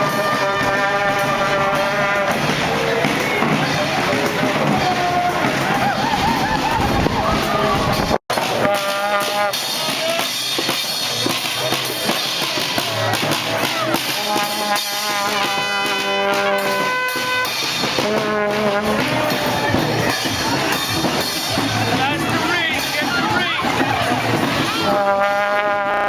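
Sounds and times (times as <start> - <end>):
brass band playing: 0.0 - 26.0
drums: 0.0 - 26.0
street noise: 0.0 - 26.0.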